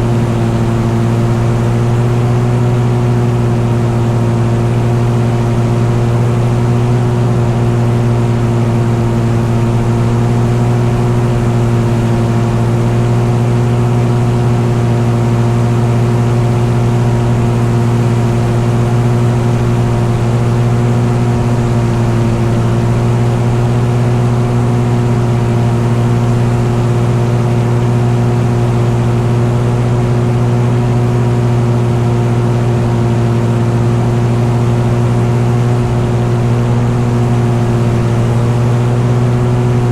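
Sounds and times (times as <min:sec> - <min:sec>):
engine droning: 0:00.0 - 0:39.9.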